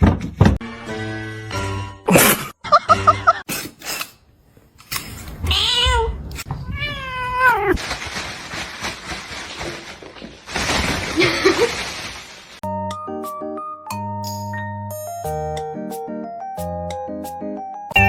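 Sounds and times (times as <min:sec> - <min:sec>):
cat meowing: 0:05.4 - 0:07.8.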